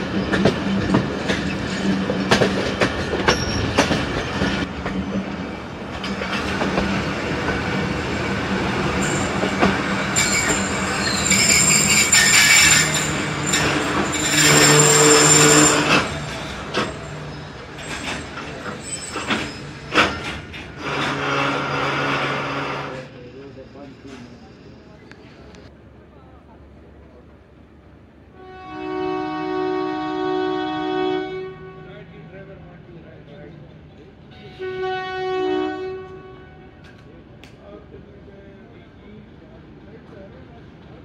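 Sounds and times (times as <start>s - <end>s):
train wheels clicking over joints: 0.0s - 25.7s
wheel and brake squeal: 3.2s - 5.3s, 9.0s - 25.6s.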